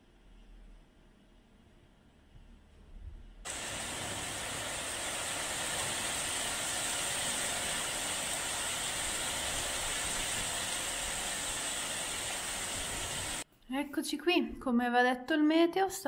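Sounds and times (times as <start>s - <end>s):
heavy rain hissing: 3.5s - 13.4s.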